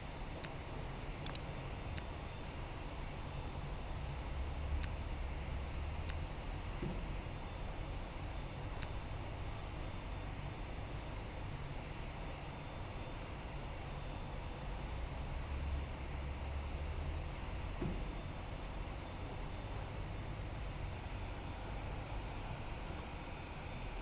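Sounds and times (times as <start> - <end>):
faint click: 0.4 - 2.4.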